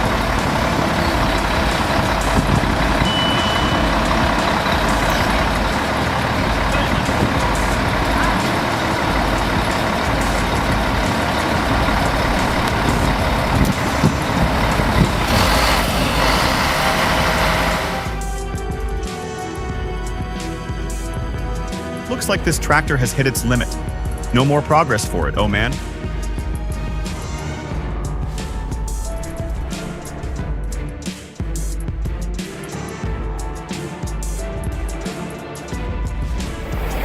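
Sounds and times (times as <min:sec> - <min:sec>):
heavy vehicle engine running: 0:00.0 - 0:37.0
short high beep: 0:03.0 - 0:03.9.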